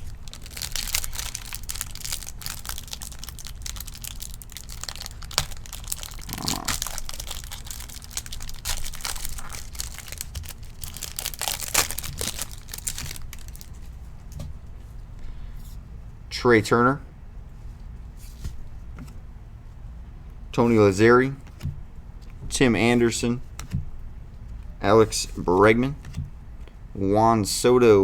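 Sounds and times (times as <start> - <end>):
foil wrapper crinkling and tearing: 0.0 - 13.9.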